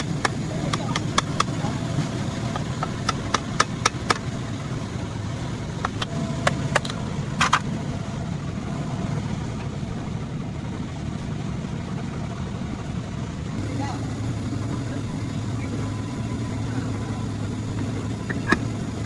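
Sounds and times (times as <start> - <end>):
engine idling: 0.0 - 19.0
sharp clicks or taps: 5.8 - 7.6.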